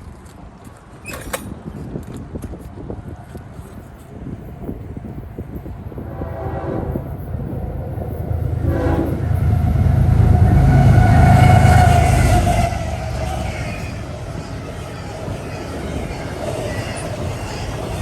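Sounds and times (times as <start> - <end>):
diesel locomotive rumble: 2.4 - 18.0
train horn: 5.9 - 18.0.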